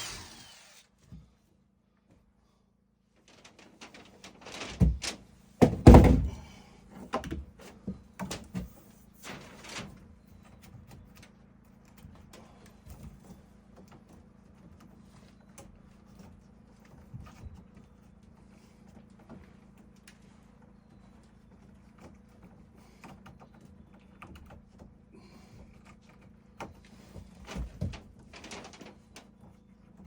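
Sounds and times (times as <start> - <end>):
heavy wooden thuds and knocks: 4.8 - 6.5.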